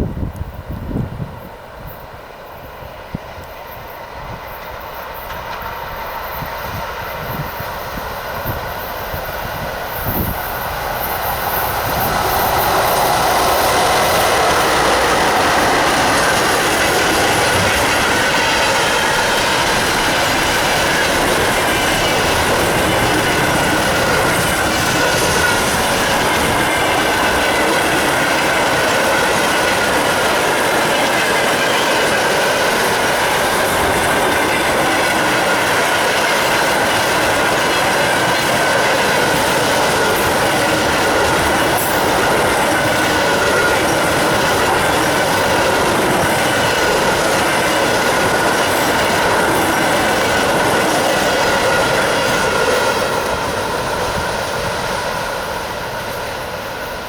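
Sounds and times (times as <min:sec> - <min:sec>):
train wagons rumbling past: 0:00.0 - 0:57.0.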